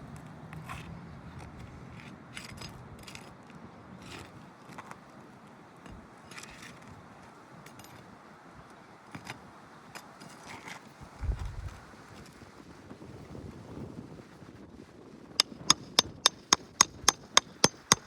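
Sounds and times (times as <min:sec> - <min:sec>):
hand tools clicking and scraping: 0:15.4 - 0:18.0.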